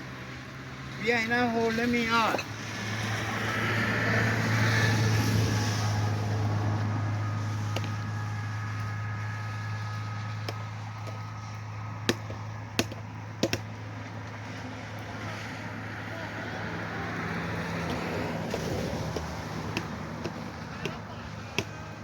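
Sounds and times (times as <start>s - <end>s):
low mechanical hum: 0.0s - 22.0s
sharp taps or clicks: 12.1s - 13.7s.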